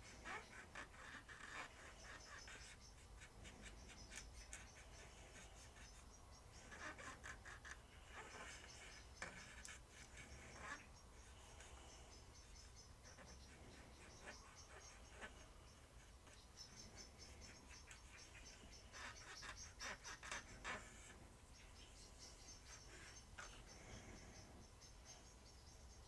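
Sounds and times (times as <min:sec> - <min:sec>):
small scratches and clicks: 0:00.0 - 0:12.0, 0:13.0 - 0:21.2
faint squeaky rubbing: 0:00.0 - 0:25.2.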